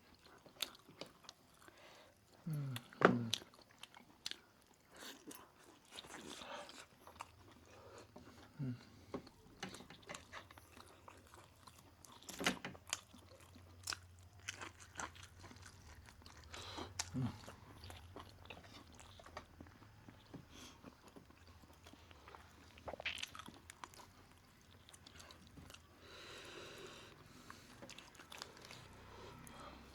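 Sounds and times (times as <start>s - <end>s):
person chewing and biting: 10.0s - 19.8s, 20.8s - 25.9s.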